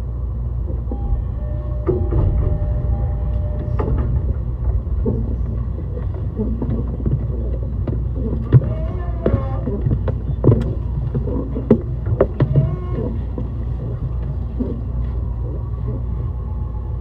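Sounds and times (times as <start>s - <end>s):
train car rumble: 0.0s - 17.0s
sharp knocks: 0.9s - 5.3s.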